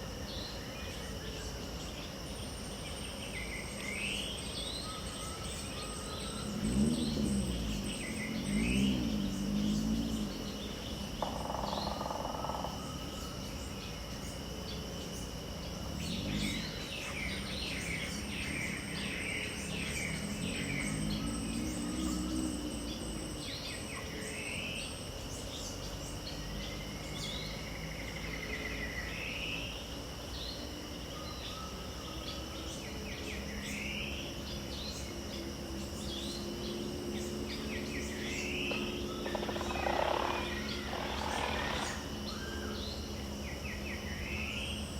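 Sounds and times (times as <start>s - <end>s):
insects buzzing: 0.0s - 44.9s
birds chattering: 34.5s - 44.9s.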